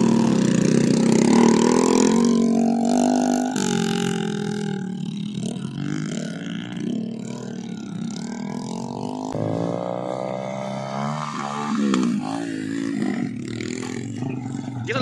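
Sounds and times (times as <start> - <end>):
motorcycle revving with rising pitch: 0.0 - 15.0
small motorcycle engines running: 0.0 - 15.0.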